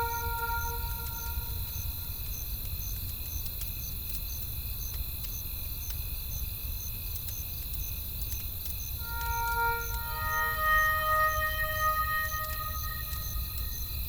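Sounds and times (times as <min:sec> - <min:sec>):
high insect drone: 0:00.0 - 0:03.0, 0:08.7 - 0:14.0
cricket chirping: 0:00.0 - 0:14.0.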